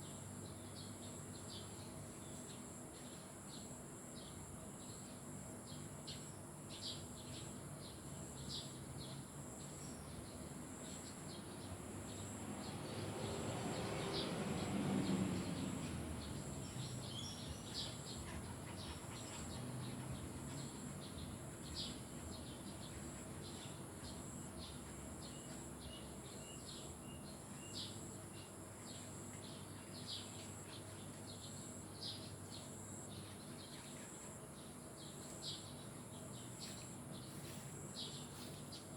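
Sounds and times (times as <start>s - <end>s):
high insect drone: 2.2s - 38.9s
birds chirping: 9.8s - 38.9s.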